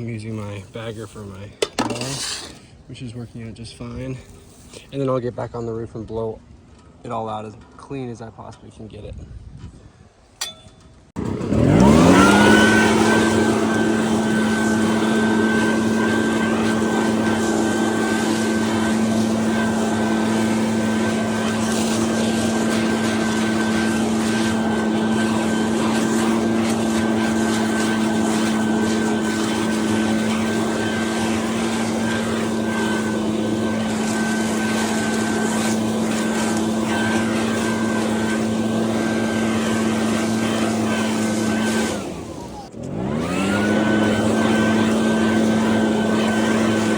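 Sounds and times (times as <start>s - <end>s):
leaf blower running: 11.2s - 46.9s.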